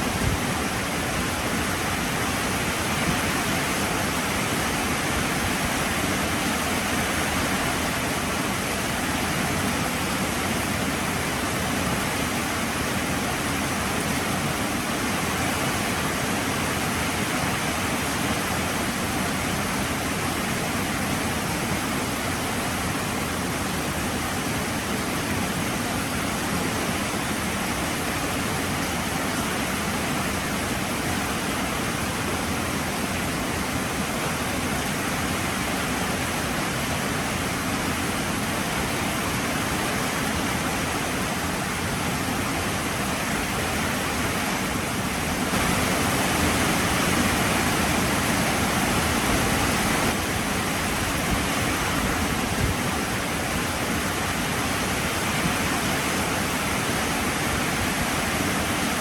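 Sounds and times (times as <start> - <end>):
heavy rain pouring: 37.5 - 59.0.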